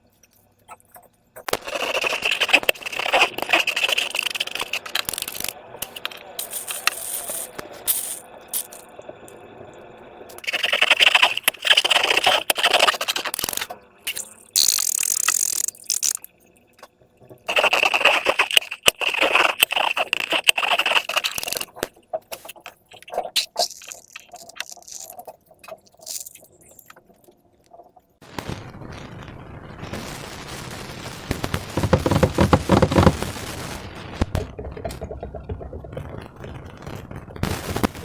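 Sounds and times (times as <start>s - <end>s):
slime squishing and scraping: 0.8s - 8.2s, 10.4s - 16.0s, 17.4s - 26.8s, 31.8s - 33.3s.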